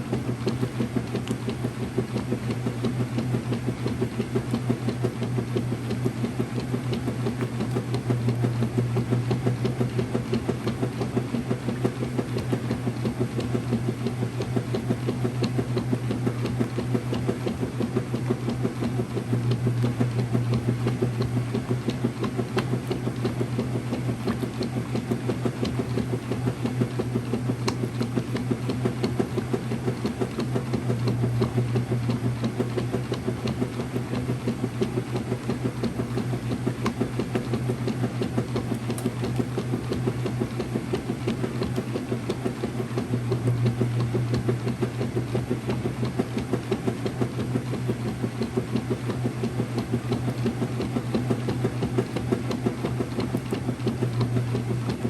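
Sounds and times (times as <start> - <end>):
washing machine running: 0.0 - 55.0.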